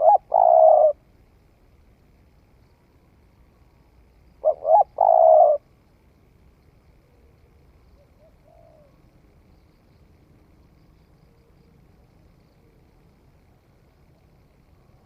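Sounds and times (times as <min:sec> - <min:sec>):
dove cooing: 0:00.0 - 0:01.1, 0:04.4 - 0:05.7, 0:08.0 - 0:09.1.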